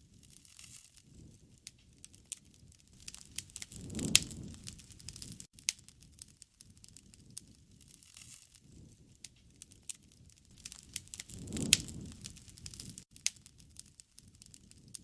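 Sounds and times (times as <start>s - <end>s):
wood fire crackling: 0.0s - 15.0s
burning wood pops: 0.1s - 15.0s
low rush: 10.6s - 13.0s.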